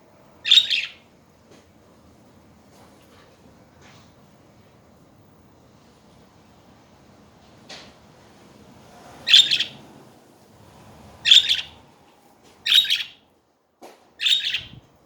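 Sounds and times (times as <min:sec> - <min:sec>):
budgerigar chirping: 0:00.4 - 0:01.0, 0:09.3 - 0:09.8, 0:11.2 - 0:11.8, 0:12.6 - 0:13.2, 0:14.2 - 0:14.8.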